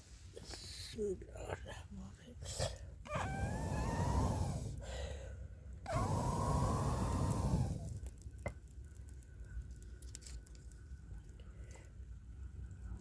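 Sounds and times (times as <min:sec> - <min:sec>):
drawn-out whining cries: 0:03.1 - 0:04.8.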